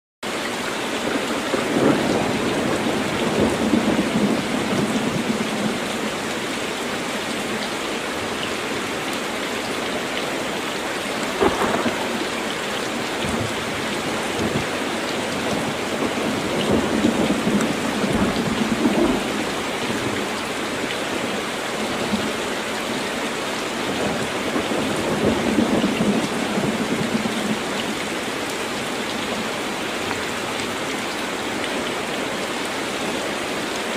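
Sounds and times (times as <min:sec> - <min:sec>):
heavy rain pouring: 0:00.2 - 0:33.9
rolling thunder: 0:01.5 - 0:05.9, 0:11.3 - 0:14.8, 0:15.4 - 0:20.2
sharp thunder crack: 0:11.4 - 0:12.3.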